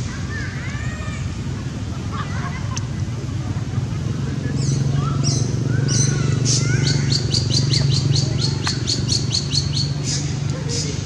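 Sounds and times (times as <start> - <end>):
bird chirping: 4.6 - 11.0.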